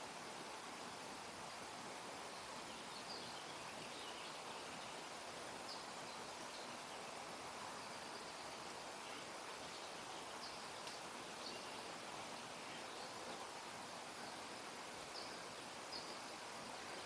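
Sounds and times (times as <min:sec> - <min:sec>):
faint hiss: 0:00.0 - 0:17.0
faint bird chirps: 0:14.2 - 0:17.0.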